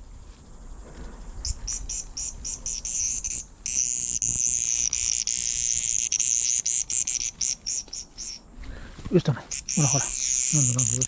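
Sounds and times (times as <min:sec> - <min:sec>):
cicada buzzing: 0:01.4 - 0:08.6, 0:09.3 - 0:11.0.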